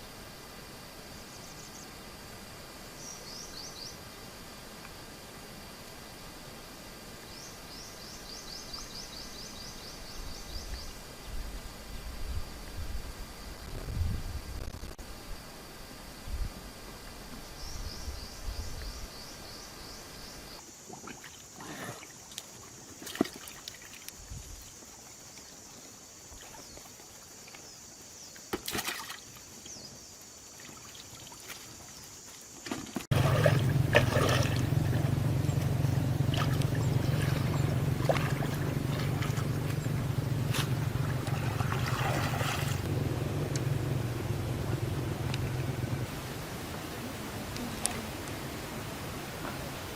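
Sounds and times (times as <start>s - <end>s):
steady high hiss: 0.0s - 20.9s, 42.7s - 49.9s
water splash: 28.6s - 29.4s, 32.6s - 42.9s
water trickling: 33.1s - 42.9s
low rumbling noise: 33.1s - 49.3s.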